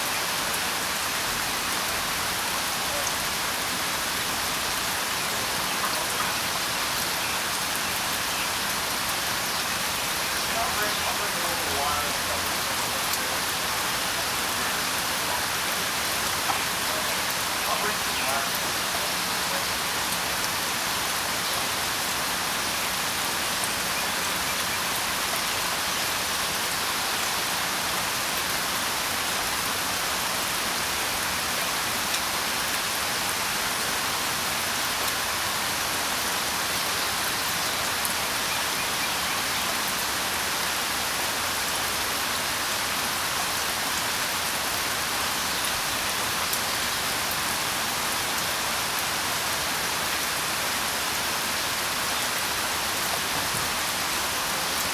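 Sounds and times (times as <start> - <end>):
steady rain hiss: 0.0 - 54.9
raindrops ticking: 4.9 - 20.6.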